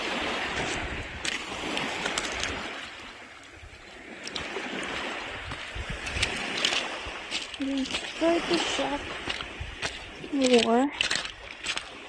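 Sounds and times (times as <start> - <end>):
seawater sloshing at shore: 0.0 - 12.0.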